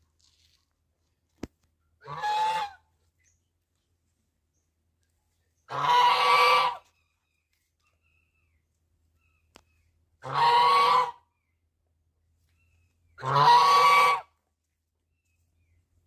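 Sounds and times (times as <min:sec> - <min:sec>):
goose honking: 0:02.0 - 0:02.9, 0:05.7 - 0:06.9, 0:10.2 - 0:11.3, 0:13.2 - 0:14.3.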